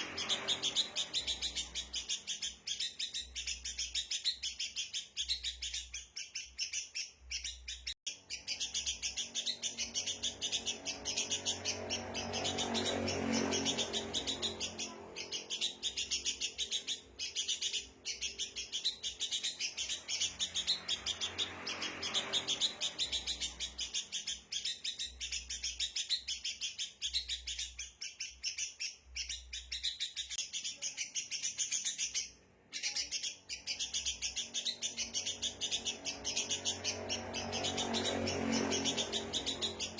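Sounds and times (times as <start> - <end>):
birds chattering: 0.0 - 39.9.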